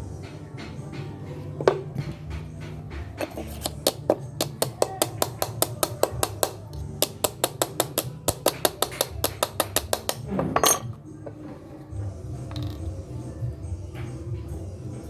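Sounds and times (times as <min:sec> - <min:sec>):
rapid metallic tapping: 0:02.3 - 0:10.2.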